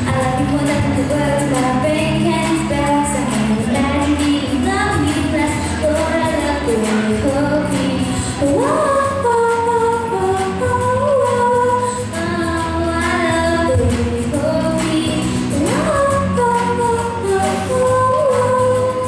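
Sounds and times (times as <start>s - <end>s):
woman singing: 0.0s - 19.0s.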